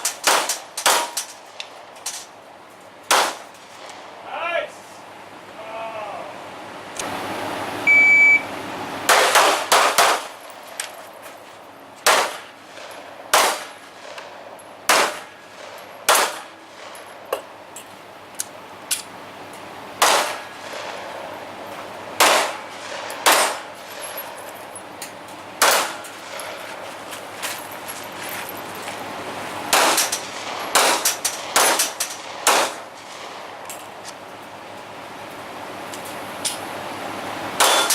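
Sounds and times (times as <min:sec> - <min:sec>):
metallic clangs of steel targets: 0:00.0 - 0:02.3, 0:22.2 - 0:26.8, 0:29.7 - 0:33.8, 0:37.6 - 0:37.9
gunshots: 0:00.2 - 0:01.2, 0:03.1 - 0:03.4, 0:09.1 - 0:10.3, 0:12.0 - 0:14.3, 0:14.9 - 0:17.0, 0:20.0 - 0:21.1, 0:22.2 - 0:23.7, 0:25.6 - 0:26.4, 0:29.7 - 0:33.4, 0:37.6 - 0:37.9
short electronic beep: 0:07.9 - 0:08.5.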